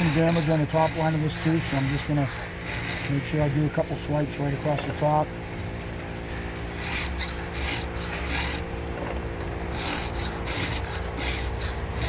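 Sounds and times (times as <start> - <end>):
file rasping on chain teeth: 0.0 - 3.7, 6.7 - 12.0.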